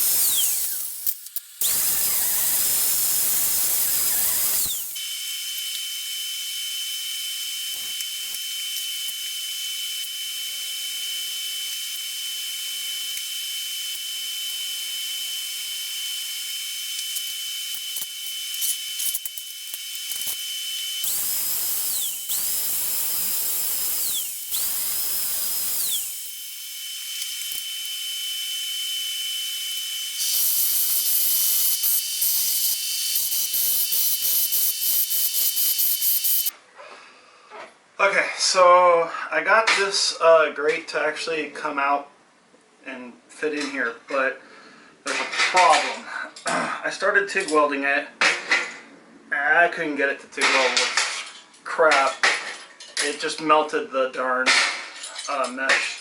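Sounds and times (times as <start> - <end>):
power tool whining: 0.0 - 36.5.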